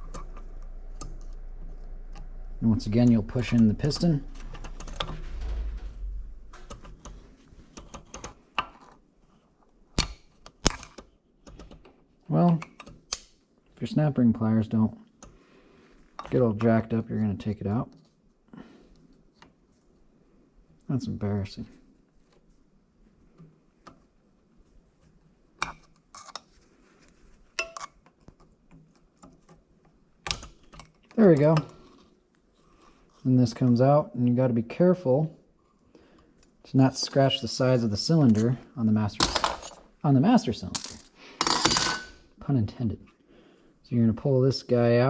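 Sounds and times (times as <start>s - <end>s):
metal clicking and scraping: 0.0s - 8.8s.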